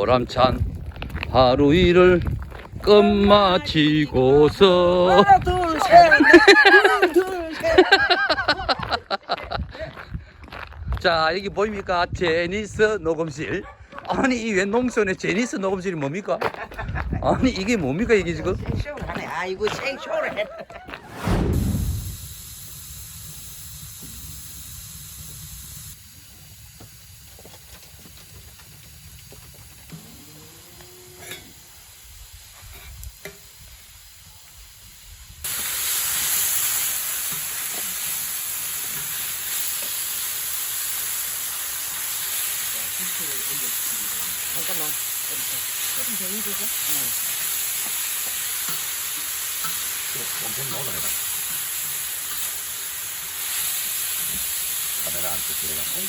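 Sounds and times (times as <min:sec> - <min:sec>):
meat sizzling on a griddle: 0:00.8 - 0:09.0, 0:21.8 - 0:56.0.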